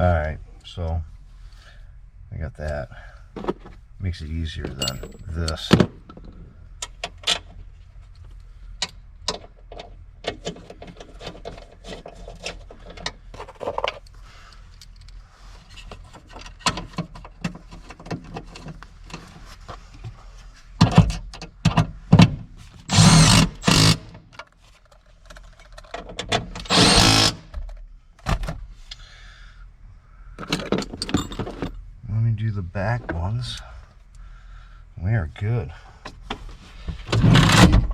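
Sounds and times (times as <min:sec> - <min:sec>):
power driver running bolts: 0:22.9 - 0:24.3, 0:26.5 - 0:27.6
tool clicks and clatter: 0:22.9 - 0:27.8.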